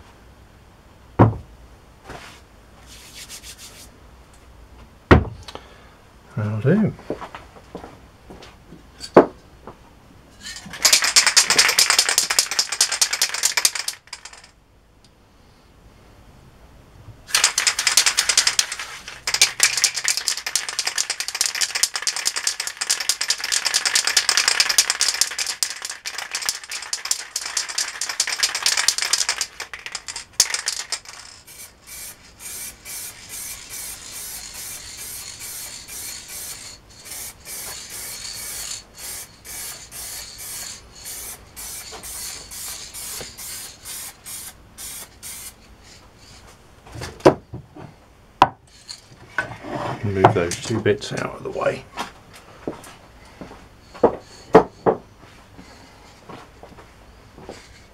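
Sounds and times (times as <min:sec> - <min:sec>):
spray paint can hissing: 0:10.8 - 0:14.4, 0:17.3 - 0:46.4.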